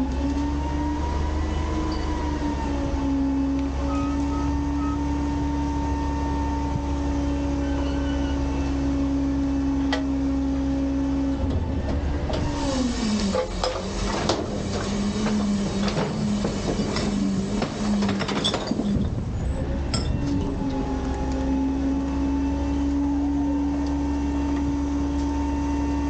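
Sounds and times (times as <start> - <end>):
hydraulic engine whine: 0.0 - 26.0
metallic clanks and rattles: 13.3 - 19.2, 19.8 - 20.6.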